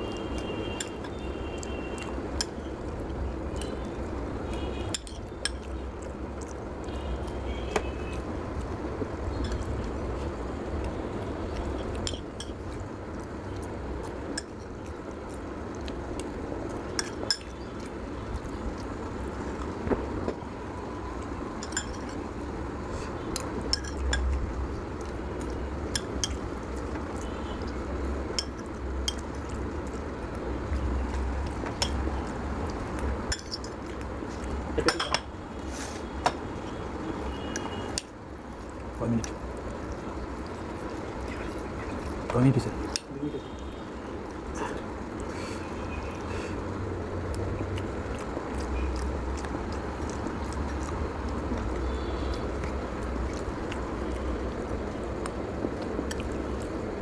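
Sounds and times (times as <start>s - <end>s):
cutlery clinking on a plate: 34.8s - 35.3s.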